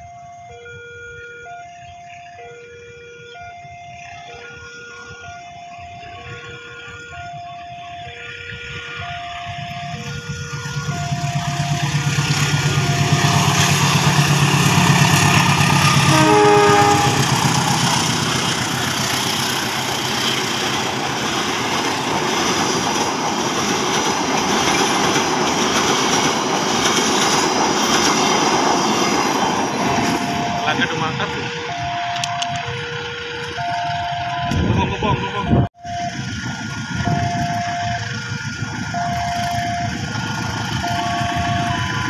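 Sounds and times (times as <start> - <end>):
level crossing alarm tones: 0.0 - 21.9, 28.0 - 42.0
locomotive engine drone: 0.0 - 42.0
train horn blast: 9.8 - 18.9.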